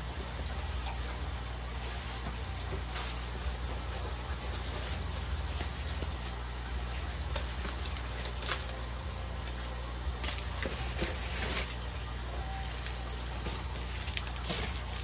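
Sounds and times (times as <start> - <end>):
low electrical hum: 0.0 - 15.0
packaging rustling: 1.7 - 8.8, 10.2 - 11.8, 12.4 - 15.0.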